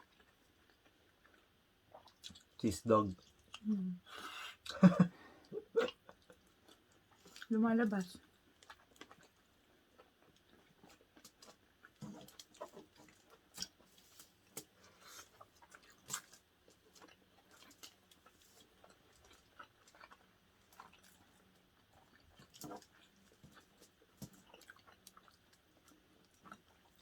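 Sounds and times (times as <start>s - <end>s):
people chewing and biting: 0.0s - 2.6s, 3.2s - 7.5s, 8.2s - 27.0s
wet smacks and clicks: 10.9s - 13.8s.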